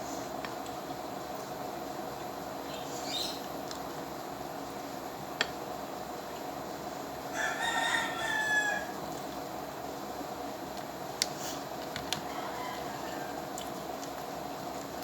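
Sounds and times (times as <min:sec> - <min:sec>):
steady hum: 0:00.0 - 0:15.0
rooster crowing: 0:07.3 - 0:09.0, 0:12.2 - 0:13.6.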